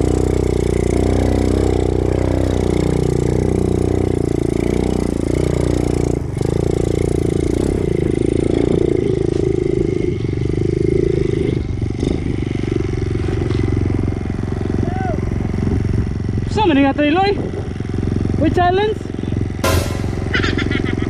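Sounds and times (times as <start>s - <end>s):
knock: 19.6s - 20.6s.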